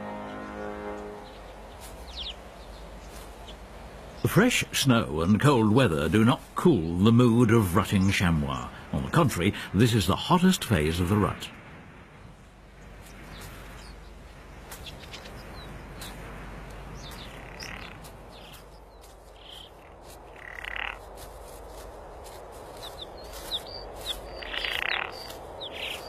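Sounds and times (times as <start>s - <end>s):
birds chirping: 0.0s - 11.5s, 12.1s - 26.0s
steady low hiss: 0.0s - 26.0s.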